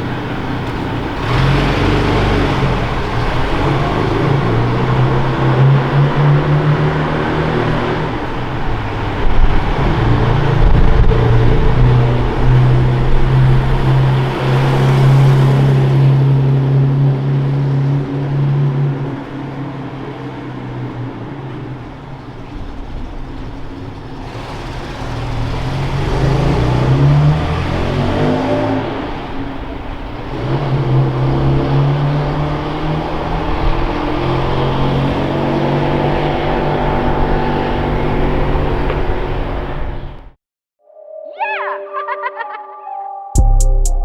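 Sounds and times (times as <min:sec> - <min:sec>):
car engine revving: 0:00.0 - 0:40.3.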